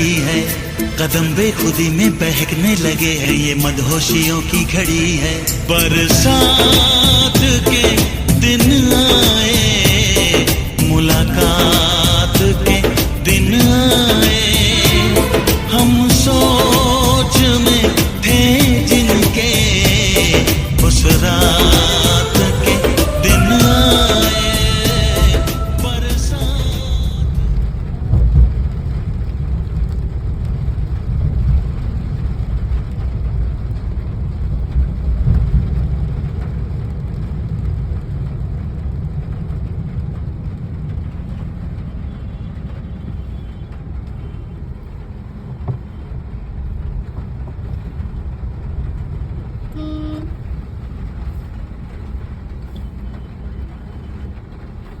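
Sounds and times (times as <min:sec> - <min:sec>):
road traffic rumble: 0:00.0 - 0:55.0
vehicle horn toot: 0:49.7 - 0:50.4.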